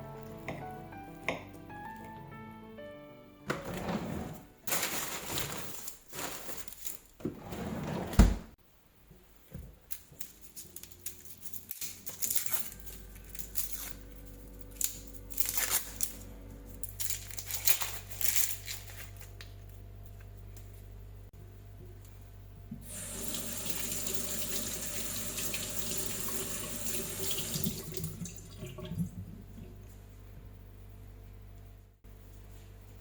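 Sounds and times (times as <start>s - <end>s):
onion skin peeling rustles: 9.9s - 19.8s.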